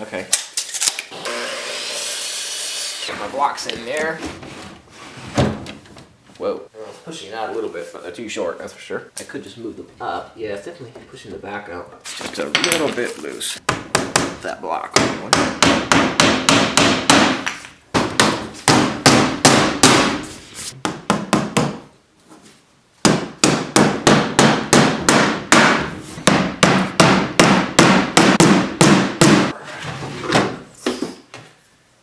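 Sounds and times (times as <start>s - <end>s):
hammer striking wood: 13.6s - 14.4s, 15.0s - 20.2s, 20.8s - 21.9s, 23.0s - 29.5s.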